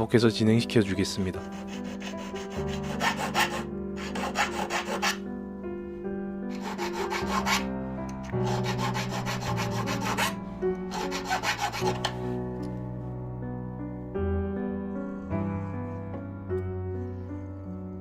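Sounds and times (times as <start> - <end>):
soft background music: 0.0 - 18.0
hand file scraping metal rod: 1.4 - 5.2, 6.5 - 12.3.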